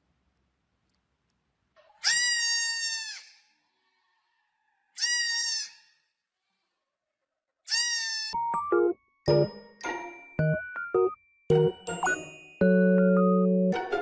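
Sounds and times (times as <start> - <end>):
goat bleating: 2.0 - 3.4, 5.0 - 5.8, 7.7 - 8.4.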